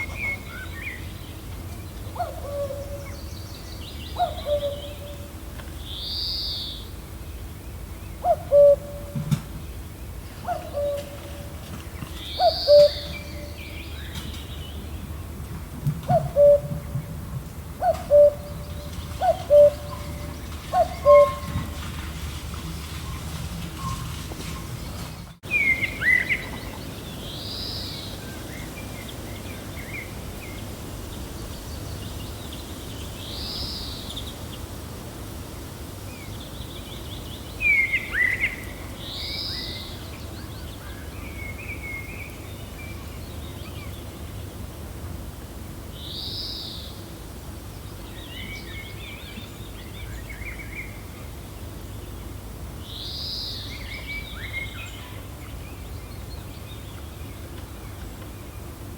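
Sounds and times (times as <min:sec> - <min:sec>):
birds chirping: 0:00.0 - 0:15.4, 0:16.0 - 0:34.8
gentle wind: 0:00.0 - 0:58.9
rising and falling bird call: 0:12.3 - 0:13.6.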